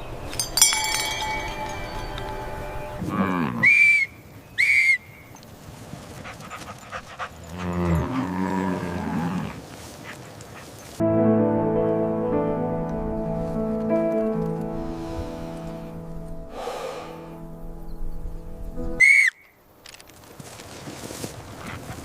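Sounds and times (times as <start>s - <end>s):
cow mooing: 3.0s - 3.7s, 7.5s - 9.6s
music: 11.0s - 19.0s.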